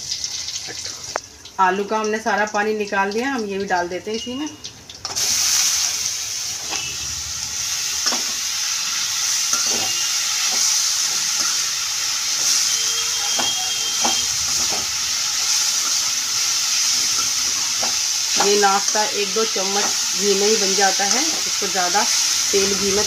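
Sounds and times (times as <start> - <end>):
potato shreds sizzling in oil: 0.0 - 23.0
spatula scraping and knocking a pan: 9.5 - 11.7, 13.3 - 16.0.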